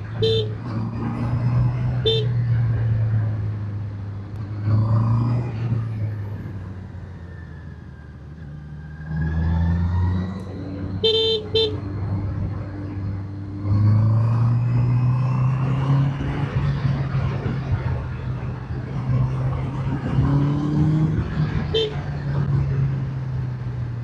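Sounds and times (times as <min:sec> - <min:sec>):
horn toots: 0:00.2 - 0:00.6, 0:02.0 - 0:02.4, 0:11.0 - 0:11.8, 0:21.7 - 0:22.0
motorcycle engine revving: 0:08.8 - 0:24.0.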